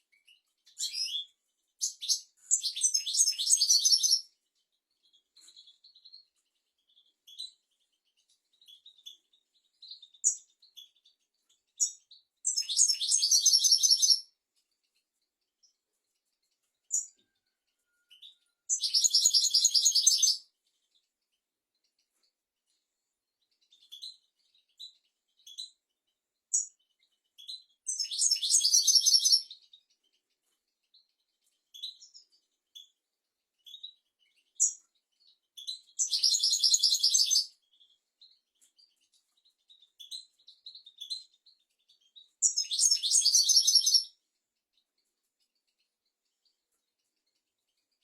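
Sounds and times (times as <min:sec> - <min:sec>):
goldfinch twittering and trilling: 0:00.2 - 0:04.3, 0:05.0 - 0:11.2, 0:11.8 - 0:14.2, 0:18.1 - 0:21.0, 0:23.6 - 0:25.8, 0:26.5 - 0:30.2, 0:30.9 - 0:32.9, 0:33.6 - 0:44.2.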